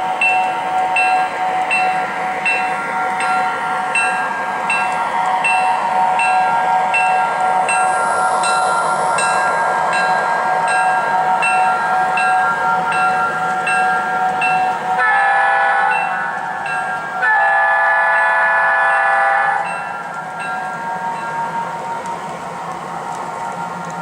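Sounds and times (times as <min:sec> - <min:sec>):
locomotive bell ringing: 0:00.0 - 0:24.0
locomotive horn blasts: 0:15.0 - 0:16.1, 0:17.2 - 0:19.7.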